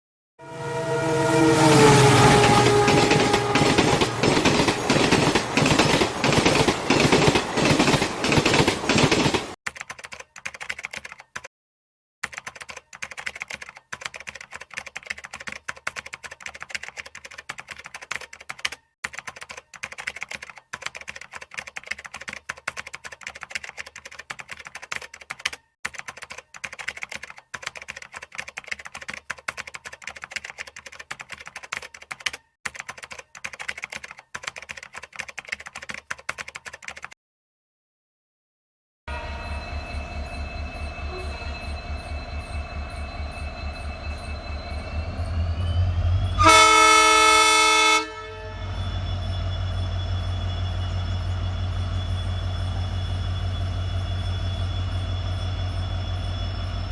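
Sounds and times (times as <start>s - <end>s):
computer keyboard typing: 2.8s - 11.5s, 12.2s - 37.2s.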